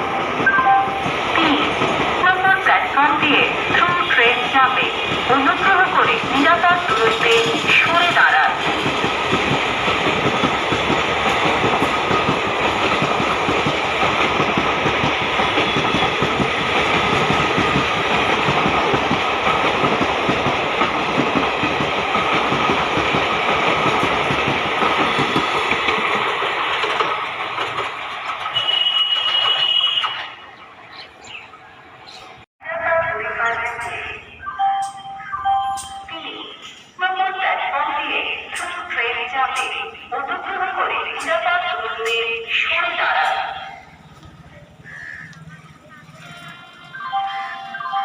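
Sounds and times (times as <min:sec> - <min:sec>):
express train passing: 0:00.0 - 0:48.0
wheels clattering over rails: 0:06.1 - 0:31.1.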